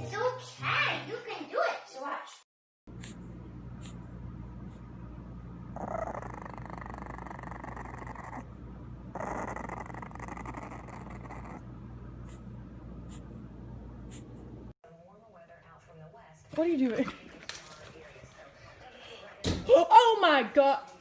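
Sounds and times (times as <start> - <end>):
steady low hum: 2.9 - 15.8
dog vocalizing: 5.8 - 8.5, 9.1 - 11.6.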